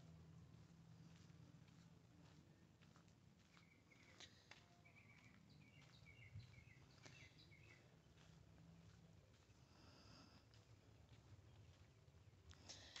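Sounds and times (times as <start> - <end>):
bird chirping faintly: 3.5 - 8.0.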